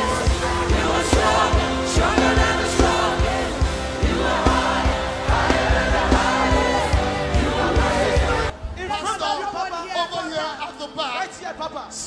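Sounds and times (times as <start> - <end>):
choir singing gospel: 0.0 - 8.8
steady drum beat: 0.0 - 8.8.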